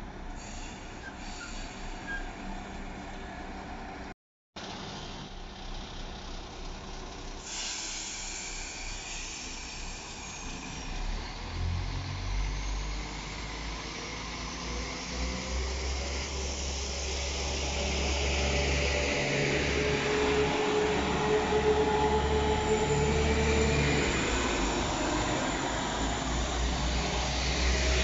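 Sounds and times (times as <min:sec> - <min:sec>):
diesel engine rumble: 0:01.8 - 0:09.4, 0:10.8 - 0:28.0
air hiss: 0:07.4 - 0:11.0.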